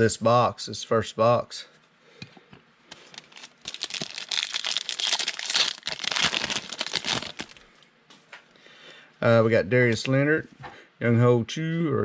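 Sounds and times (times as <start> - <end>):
wrapper crinkling and tearing: 2.9 - 7.7.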